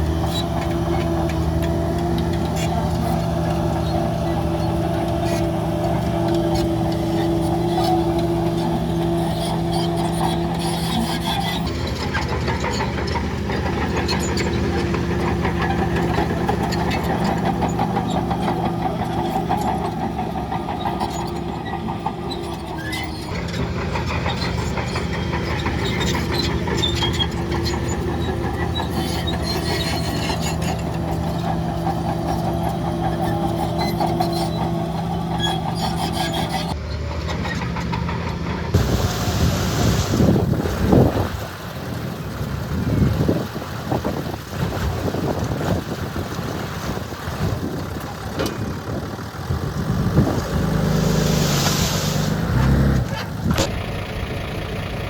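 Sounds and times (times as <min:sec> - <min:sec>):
diesel machinery engine hum: 0:00.0 - 0:55.0
wind noise on microphone: 0:38.8 - 0:50.9.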